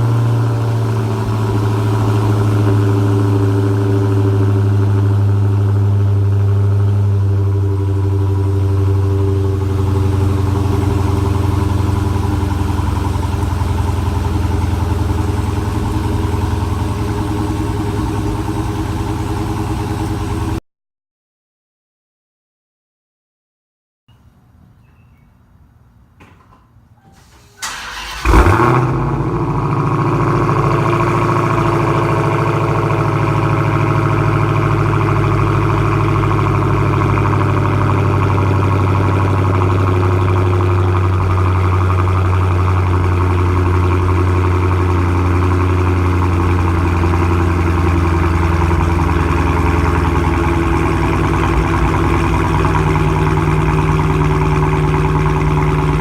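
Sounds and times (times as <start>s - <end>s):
car engine revving and idling: 0.0s - 20.6s, 27.6s - 56.0s
engine cranking: 27.2s - 29.0s.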